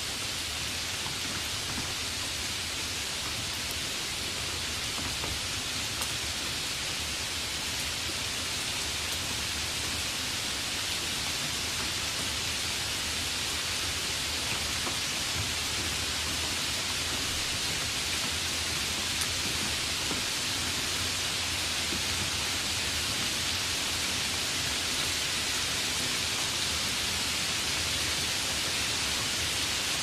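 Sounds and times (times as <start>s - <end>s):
steady rain hiss: 0.0s - 30.0s
faint rain drop ticks: 4.8s - 6.3s, 14.3s - 24.4s.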